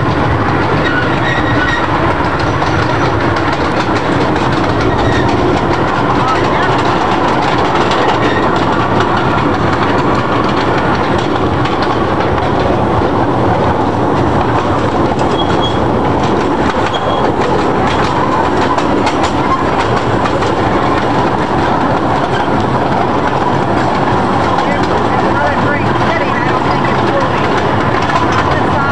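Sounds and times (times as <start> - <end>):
train cars rumbling and rattling: 0.0 - 28.9
wheels clacking over rails: 0.0 - 28.9
short high squeaks: 15.3 - 15.8.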